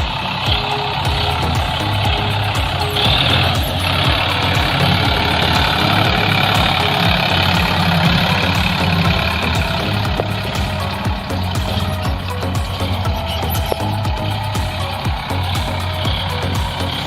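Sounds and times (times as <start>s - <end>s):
tractor engine knocking: 0.0s - 17.0s.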